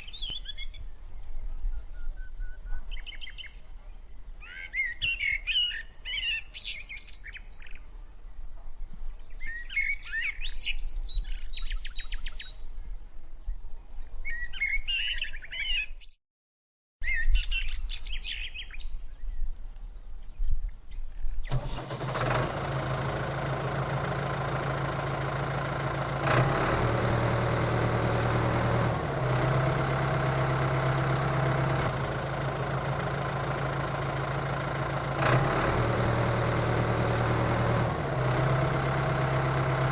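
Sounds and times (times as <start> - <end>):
birds chirping: 0.0 - 12.9
tractor motor humming: 21.5 - 39.9.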